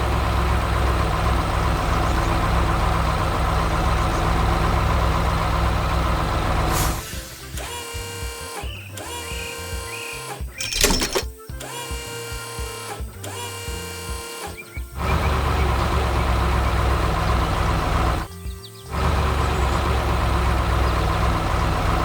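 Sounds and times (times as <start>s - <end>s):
heavy truck engine running: 0.0s - 9.2s, 13.5s - 18.3s, 18.9s - 22.0s
light background music: 6.7s - 22.0s.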